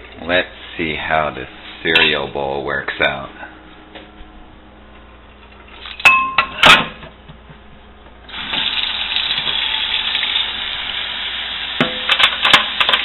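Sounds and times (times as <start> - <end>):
clink: 6.0 - 6.7.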